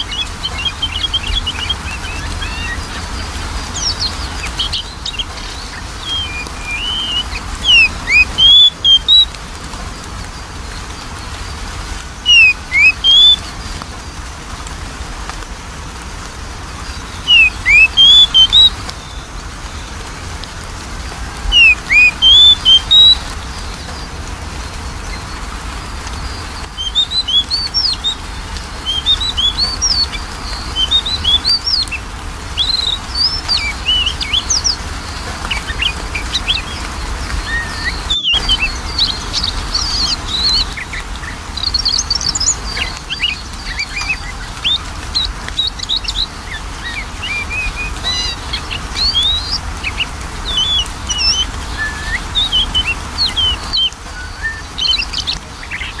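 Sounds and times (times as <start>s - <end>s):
soft bird twittering: 0.0s - 14.3s, 16.5s - 56.0s
bird singing sliding whistles: 3.7s - 9.3s, 12.2s - 13.5s, 17.2s - 18.8s, 21.4s - 23.2s, 32.6s - 56.0s.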